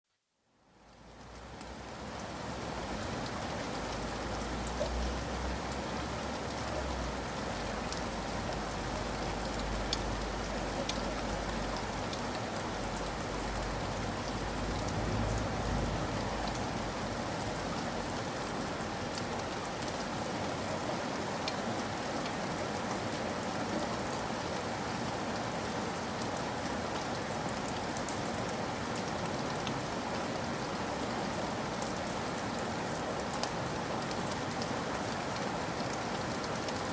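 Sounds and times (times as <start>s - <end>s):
raindrops ticking: 2.9s - 22.4s.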